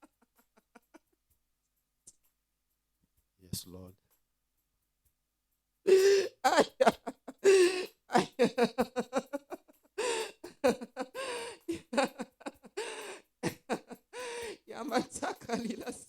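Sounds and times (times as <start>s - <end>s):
person speaking in tongues: 14.6s - 16.0s.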